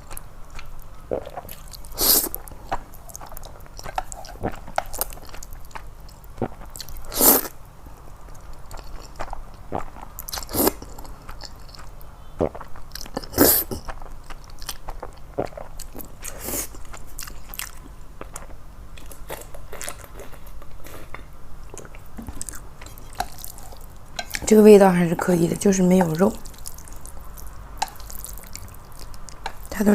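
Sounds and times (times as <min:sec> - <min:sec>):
loud noodle slurps: 0:07.1 - 0:07.5
chewing and wet mouth clicks: 0:26.4 - 0:29.7.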